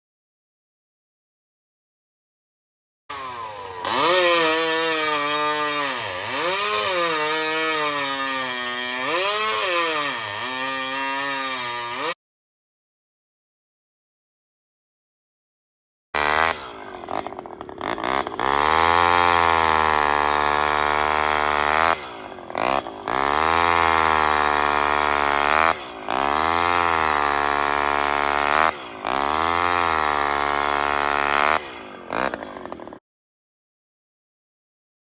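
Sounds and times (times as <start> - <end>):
chainsaw idling and revving: 3.1 - 12.2, 16.2 - 33.0.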